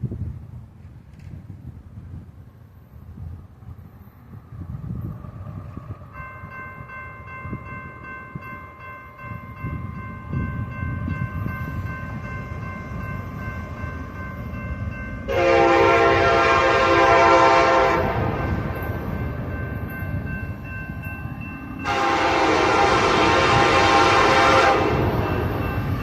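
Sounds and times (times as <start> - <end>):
freight train rumble: 0.0 - 26.0
steady high ringing: 6.0 - 26.0
locomotive air horn blast: 15.3 - 18.6, 21.8 - 25.2.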